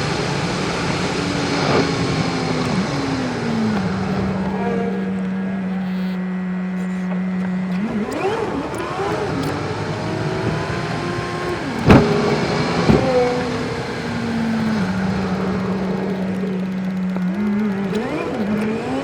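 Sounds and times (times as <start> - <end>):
car engine running: 0.0 - 19.0
sharp thumps: 6.8 - 14.9.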